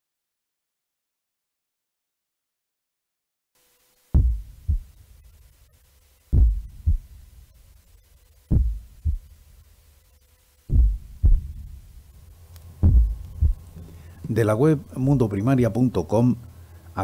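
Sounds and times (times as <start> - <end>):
heartbeat thumps: 4.2 - 5.0, 6.3 - 7.3, 8.5 - 9.4, 10.7 - 12.0, 12.8 - 13.8.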